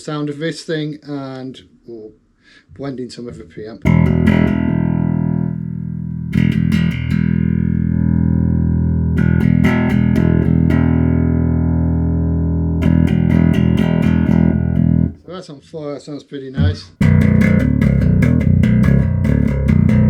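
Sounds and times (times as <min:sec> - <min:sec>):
electric bass notes ringing: 0:03.8 - 0:15.2, 0:16.6 - 0:20.0.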